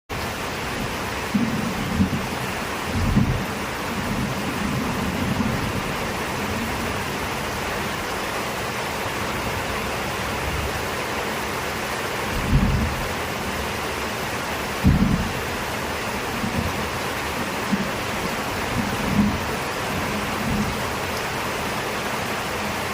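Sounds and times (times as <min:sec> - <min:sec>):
thunder rumbling: 0:00.1 - 0:08.1, 0:12.3 - 0:13.8, 0:14.6 - 0:21.8
heavy rain falling: 0:00.1 - 0:22.9.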